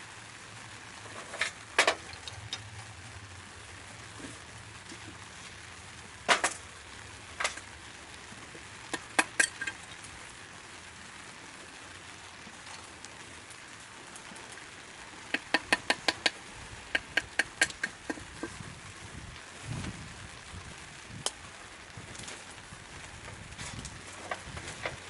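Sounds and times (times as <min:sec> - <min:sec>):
faint steady hiss: 0:00.0 - 0:25.0
hard objects clicking and knocking: 0:01.1 - 0:02.7, 0:08.9 - 0:09.8, 0:15.3 - 0:18.6.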